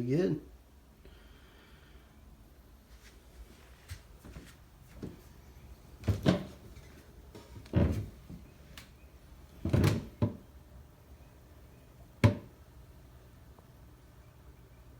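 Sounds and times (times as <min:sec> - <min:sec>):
dull knocks and thumps: 0:06.0 - 0:08.6, 0:09.6 - 0:10.5, 0:12.2 - 0:12.5.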